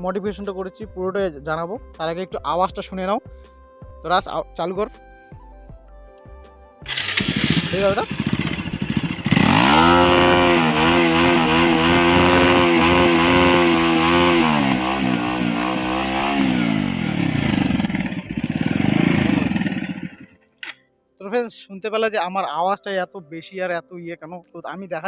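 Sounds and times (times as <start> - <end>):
motorcycle engine revving: 6.8 - 20.4
loud exhaust: 6.9 - 20.4.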